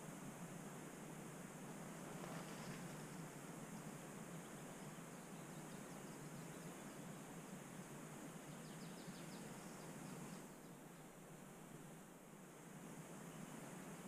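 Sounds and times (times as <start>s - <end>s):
faint outdoor ambience: 0.0s - 14.0s
small bird chirping: 4.3s - 11.1s.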